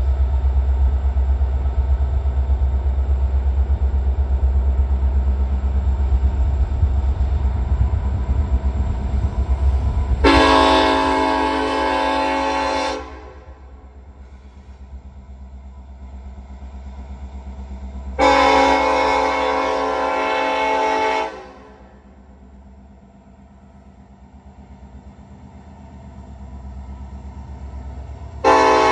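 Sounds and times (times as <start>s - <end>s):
diesel locomotive rumble: 0.0s - 28.9s
locomotive air horn blasts: 10.2s - 13.8s, 18.2s - 22.0s, 28.4s - 28.9s.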